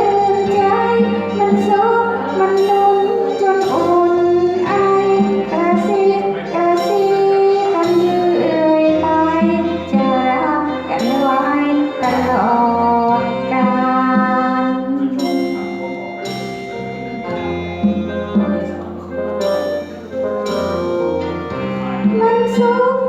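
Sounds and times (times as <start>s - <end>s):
woman singing: 0.0s - 15.7s, 21.9s - 23.0s
instrumental accompaniment: 0.0s - 23.0s.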